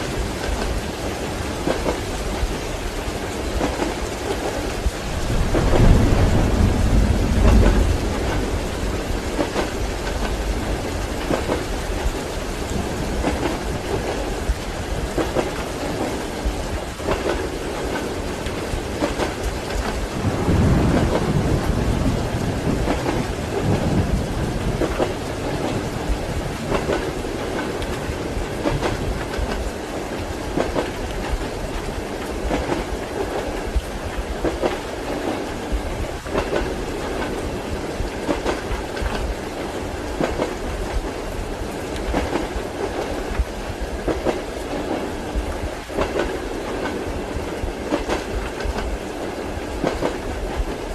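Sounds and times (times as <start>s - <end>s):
low roll of thunder: 0.0s - 50.9s
steady rain: 0.0s - 50.9s
train wheels knocking on rail joints: 3.3s - 50.8s.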